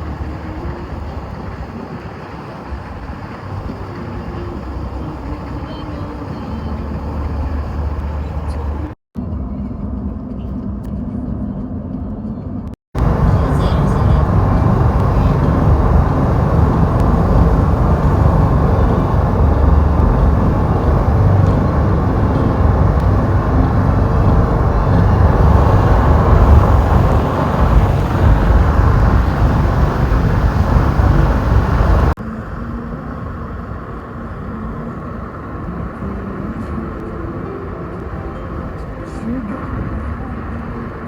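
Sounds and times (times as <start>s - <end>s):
car road and wind noise: 0.0s - 41.0s.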